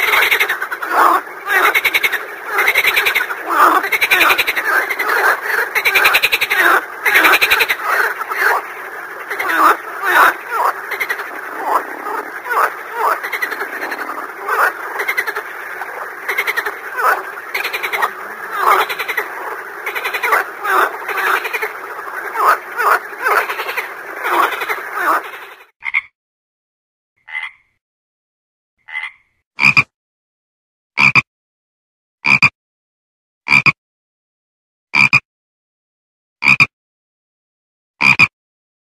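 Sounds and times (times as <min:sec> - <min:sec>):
chorus of frogs croaking: 0:00.0 - 0:26.1
single frog croaks: 0:09.2 - 0:21.6, 0:27.2 - 0:27.7, 0:28.8 - 0:29.9, 0:31.0 - 0:31.3, 0:32.2 - 0:32.5, 0:33.5 - 0:33.8, 0:35.0 - 0:35.2, 0:36.4 - 0:36.7, 0:38.0 - 0:38.3.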